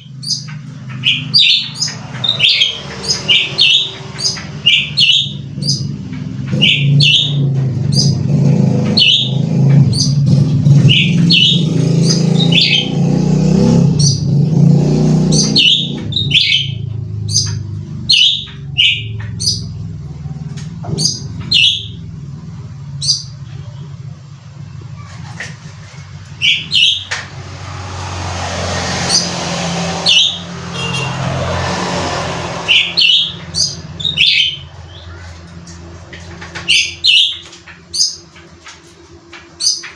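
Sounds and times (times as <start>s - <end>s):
bird chirping sharply: 0.0s - 8.3s, 8.9s - 13.0s, 15.3s - 19.8s, 20.9s - 22.1s, 26.4s - 28.0s, 28.6s - 31.9s, 32.5s - 35.3s, 36.6s - 38.3s
low motor rumble: 0.0s - 39.6s.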